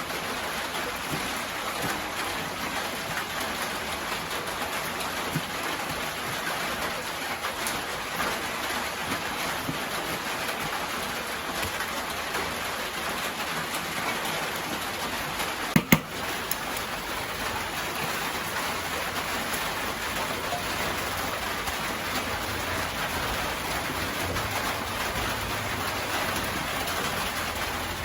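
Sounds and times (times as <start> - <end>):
rain falling: 0.0 - 28.0
sharp knocks: 15.8 - 16.2.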